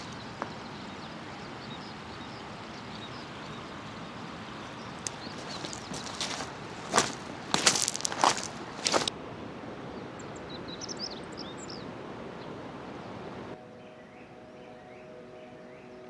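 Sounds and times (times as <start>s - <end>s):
footsteps crunching on gravel: 0.0s - 9.1s
small birds chirping: 0.0s - 9.1s, 10.0s - 13.6s
river rushing: 0.0s - 13.6s.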